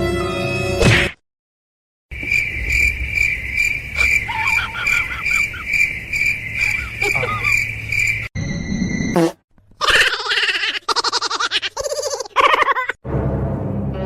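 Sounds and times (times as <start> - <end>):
music: 0.0 - 1.1, 13.0 - 14.0
crickets chirping: 2.1 - 9.1
faint warbling calls: 2.4 - 9.2.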